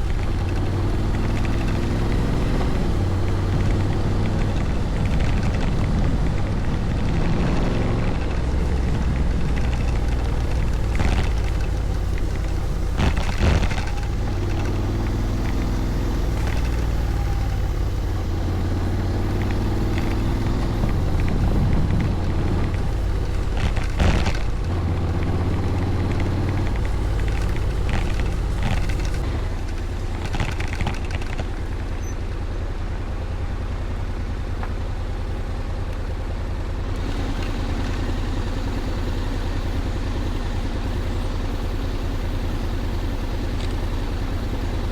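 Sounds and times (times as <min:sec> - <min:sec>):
wind noise: 0:00.0 - 0:31.4
motorcycle engine running: 0:00.0 - 0:44.9.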